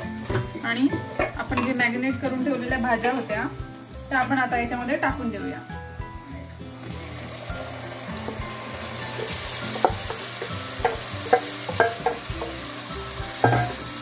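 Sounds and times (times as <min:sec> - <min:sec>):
vegetables sizzling in hot oil: 0:00.0 - 0:14.0
wooden spatula knocking pan: 0:00.2 - 0:01.8, 0:09.1 - 0:12.7, 0:13.3 - 0:14.0.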